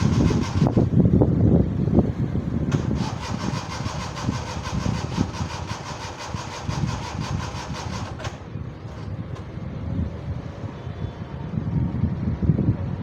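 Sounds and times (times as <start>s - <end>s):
starter motor cranking engine: 0.0s - 1.0s, 2.6s - 9.5s
low engine rumble: 0.0s - 13.0s.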